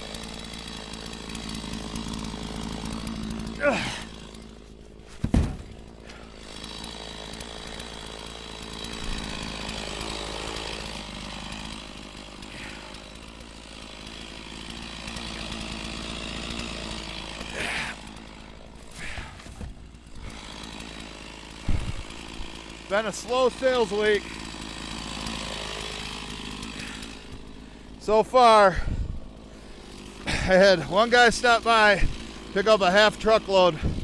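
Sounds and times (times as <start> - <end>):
chainsaw running: 0.0 - 34.0
thud: 5.1 - 5.8.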